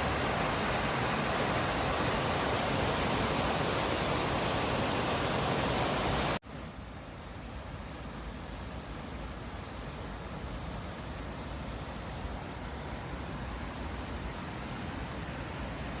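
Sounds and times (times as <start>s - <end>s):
waterfall rushing: 0.0s - 6.4s.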